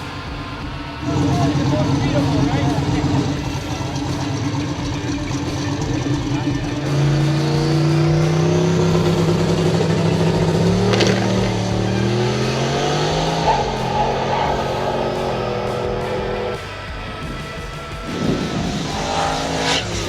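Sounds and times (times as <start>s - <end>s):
drag car engine accelerating: 0.0s - 20.0s.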